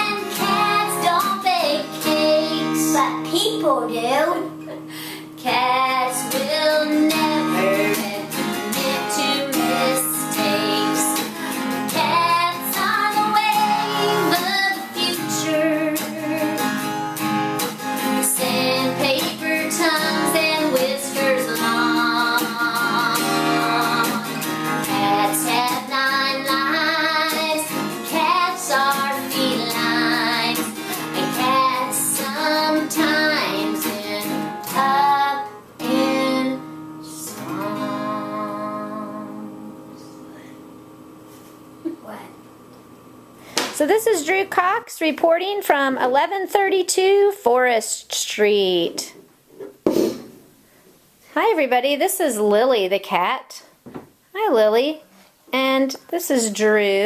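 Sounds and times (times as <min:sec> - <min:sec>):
person singing children's song: 0:00.0 - 0:04.6, 0:05.4 - 0:16.7, 0:18.1 - 0:40.1
guitar chords: 0:00.0 - 0:45.8.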